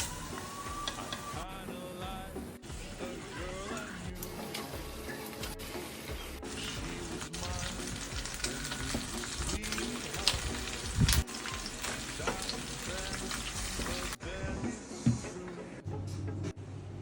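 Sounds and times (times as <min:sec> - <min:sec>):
food sizzling in oil: 0:03.0 - 0:14.2.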